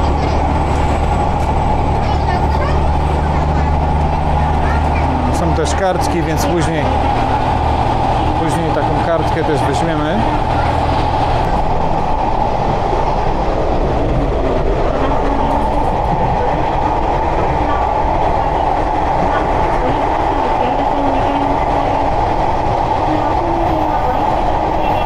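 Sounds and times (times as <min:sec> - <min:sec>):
train rumbling inside carriage: 0:00.0 - 0:25.0.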